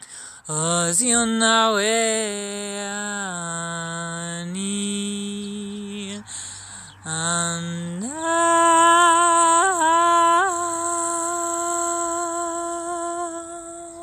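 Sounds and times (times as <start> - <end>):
woman singing sustained note: 8.0 - 14.0.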